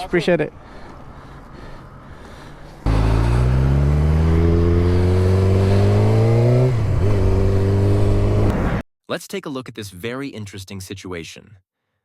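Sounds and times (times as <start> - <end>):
vehicle engine accelerating: 2.8 - 8.8.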